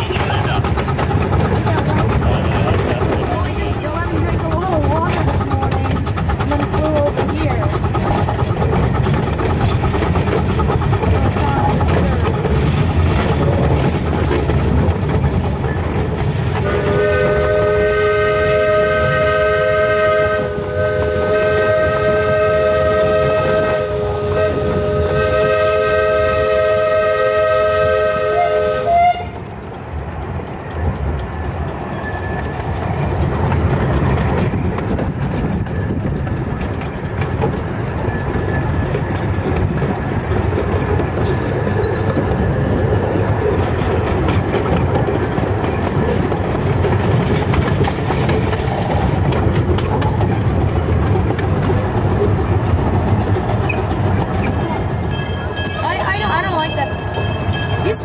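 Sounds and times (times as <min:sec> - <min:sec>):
miniature train rumbling on track: 0:00.0 - 0:58.0
steam locomotive chime whistle: 0:16.6 - 0:29.4.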